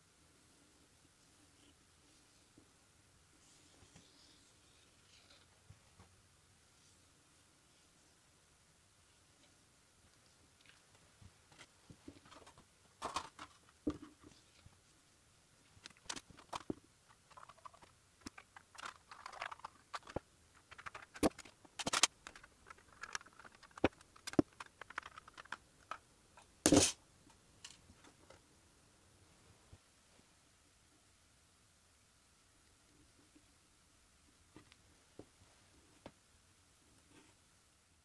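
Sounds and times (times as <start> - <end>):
small hard objects clicking: 15.8 - 26.9.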